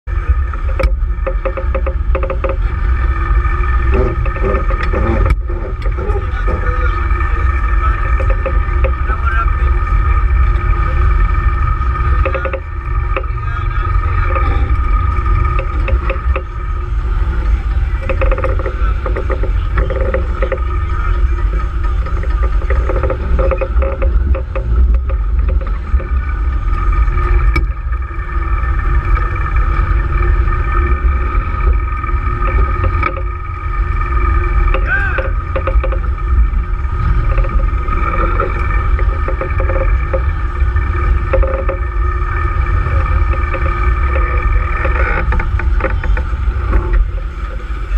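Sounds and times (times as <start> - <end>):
hum of held tones: 0.0 - 47.9
wind buffeting microphone: 0.0 - 47.9
small knocks: 0.5 - 9.2, 11.5 - 28.0, 28.7 - 47.6.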